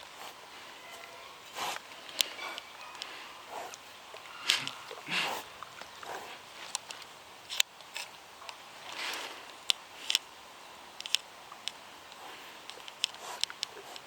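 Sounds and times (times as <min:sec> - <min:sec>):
soft breathy puff: 0:04.4 - 0:06.4.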